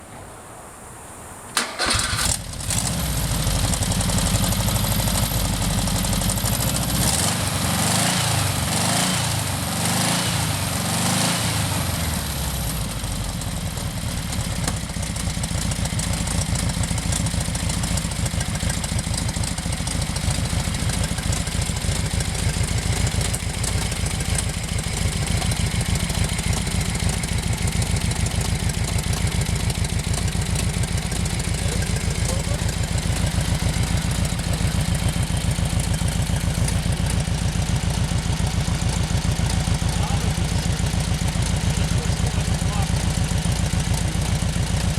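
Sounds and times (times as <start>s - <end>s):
car engine starting and revving: 1.6s - 12.6s.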